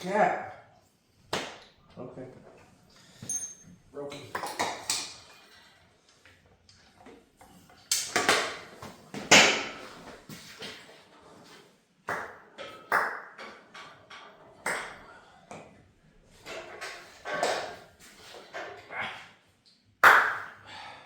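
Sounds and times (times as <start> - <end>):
metallic clinks and clanks: 3.1 - 3.8.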